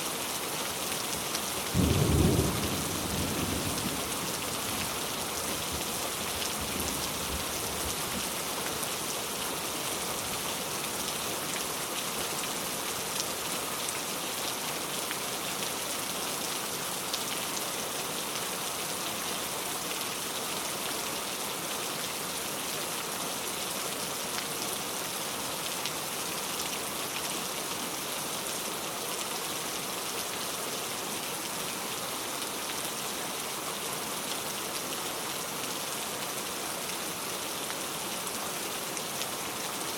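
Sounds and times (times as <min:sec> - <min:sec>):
heavy rain falling: 0:00.1 - 0:39.9.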